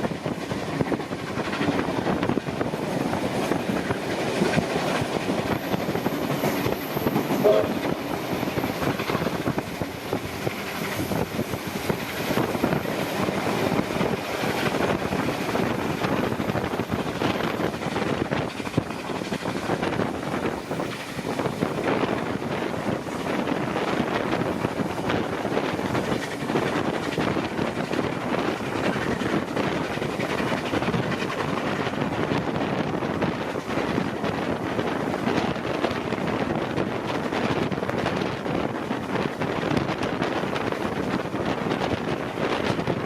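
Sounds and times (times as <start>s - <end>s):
train rushing along tracks: 0.0s - 43.0s
short high tone: 7.4s - 7.9s.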